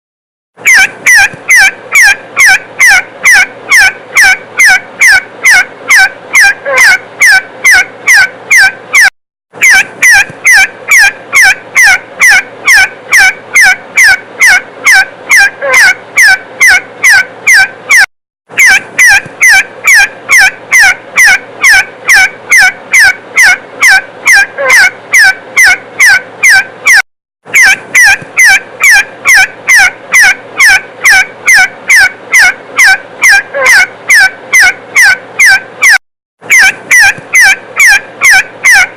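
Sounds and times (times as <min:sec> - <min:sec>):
partridge call: 0:00.6 - 0:38.9.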